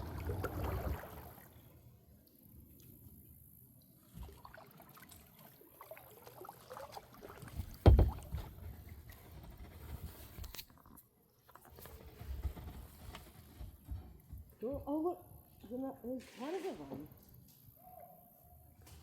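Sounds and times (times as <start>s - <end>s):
kayak paddle splashes: 0.0s - 1.8s, 4.0s - 9.1s
loud thump: 7.8s - 8.4s.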